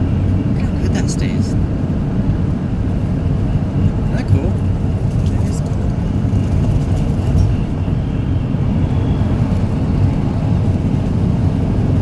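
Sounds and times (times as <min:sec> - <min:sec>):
car driving low rumble: 0:00.0 - 0:12.0.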